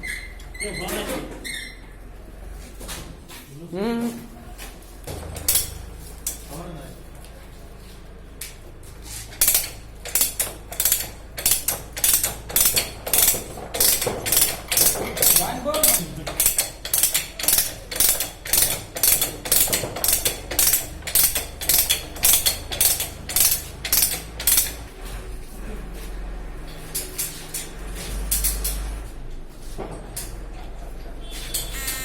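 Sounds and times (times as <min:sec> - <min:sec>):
hand tool rhythmic strokes: 0:09.1 - 0:24.9.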